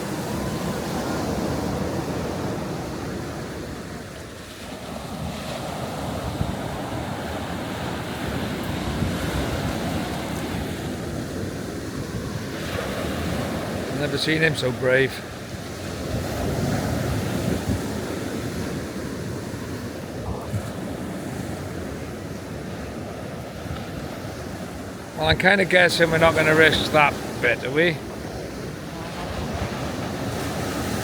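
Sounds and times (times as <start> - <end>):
sea waves washing onto beach: 0.0 - 31.0
wind buffeting microphone: 15.6 - 31.0.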